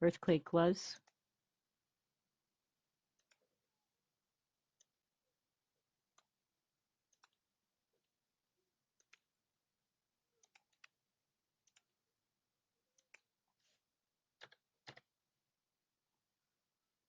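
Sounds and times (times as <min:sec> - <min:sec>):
computer mouse clicks: 0:03.2 - 0:03.5, 0:07.1 - 0:07.4, 0:09.0 - 0:09.3, 0:10.4 - 0:11.0, 0:11.6 - 0:11.9, 0:12.9 - 0:13.3.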